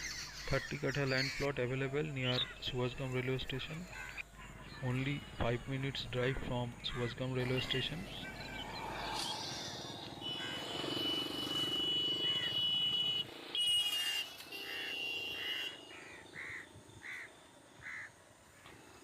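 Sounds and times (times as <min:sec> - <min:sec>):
crows cawing: 0:03.8 - 0:04.8, 0:09.6 - 0:10.9, 0:14.6 - 0:18.9.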